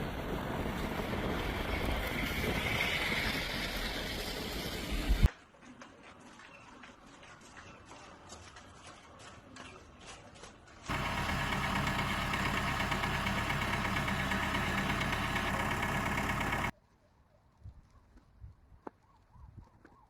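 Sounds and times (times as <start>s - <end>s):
vehicle engine running: 10.9s - 16.7s.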